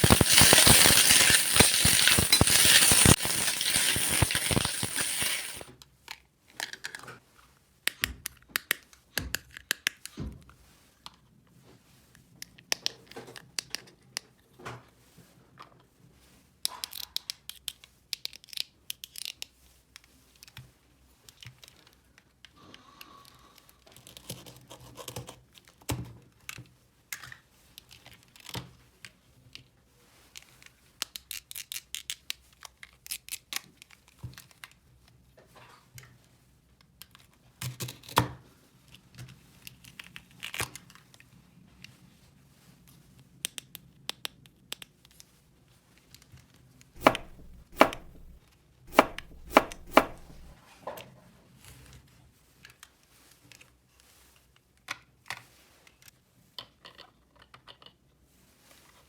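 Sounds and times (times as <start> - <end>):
packaging rustling: 0.0 - 5.7, 47.0 - 50.6
plastic toy pieces clicking: 0.0 - 5.7, 47.0 - 50.5
plastic snaps: 47.0 - 50.6.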